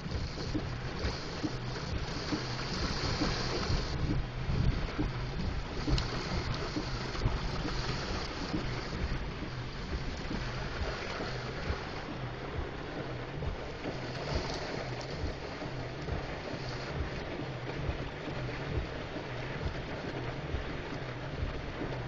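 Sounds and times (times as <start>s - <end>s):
rough rumbling over bumps: 0.0s - 22.0s
vehicle engine hum: 0.0s - 22.0s.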